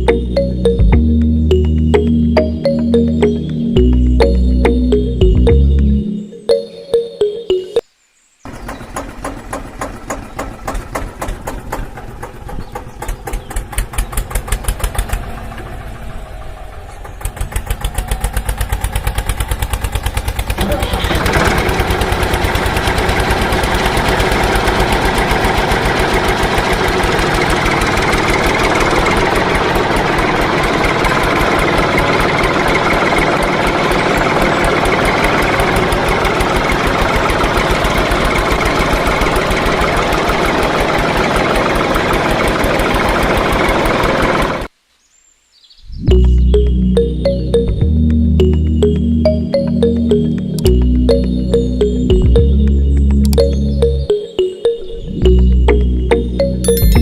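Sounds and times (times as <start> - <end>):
tractor engine thumping: 8.5 - 44.6.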